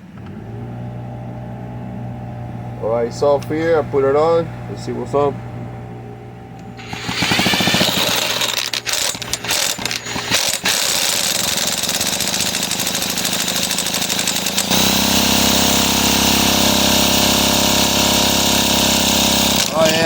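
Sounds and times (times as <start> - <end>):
chainsaw engine spinning over: 6.8 - 20.0.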